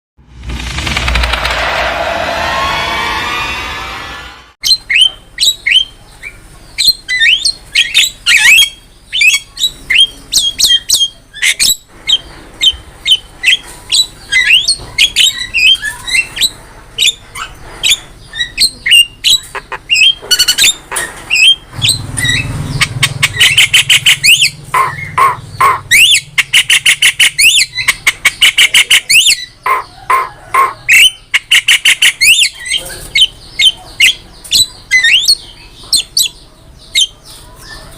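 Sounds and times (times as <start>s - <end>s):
bird calling with squawks and whistles: 4.6s - 37.9s.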